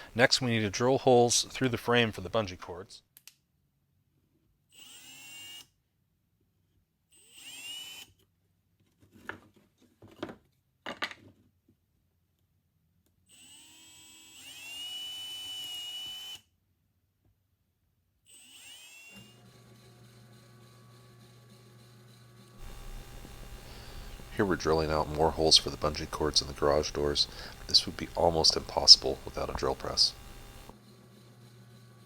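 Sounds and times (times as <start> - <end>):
electric drill boring wood: 4.7 - 5.7, 7.2 - 8.2, 13.3 - 16.4, 18.3 - 32.0.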